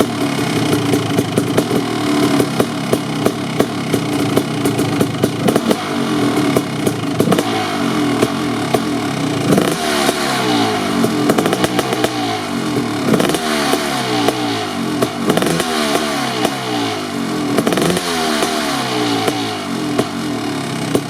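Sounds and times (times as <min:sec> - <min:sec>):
exhaust crackles: 0:00.0 - 0:21.0
two-stroke engine revving: 0:00.0 - 0:21.0.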